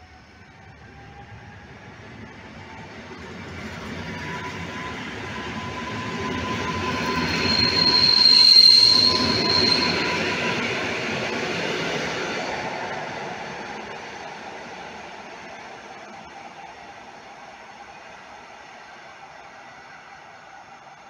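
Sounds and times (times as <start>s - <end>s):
train rumbling past: 0.0s - 21.0s
wheel squeal: 4.2s - 12.5s.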